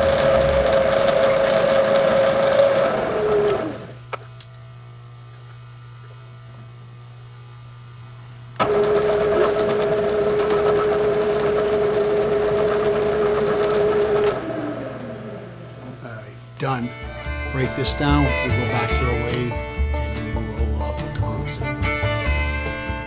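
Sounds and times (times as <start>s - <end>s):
low hum: 0.0s - 4.6s
milling machine whining: 0.0s - 4.6s, 8.6s - 23.0s.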